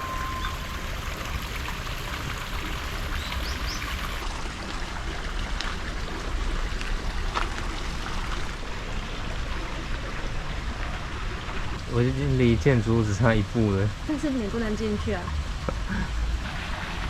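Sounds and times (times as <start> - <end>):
faint high chirps: 0.0 - 1.4
running water rushing: 0.0 - 17.0.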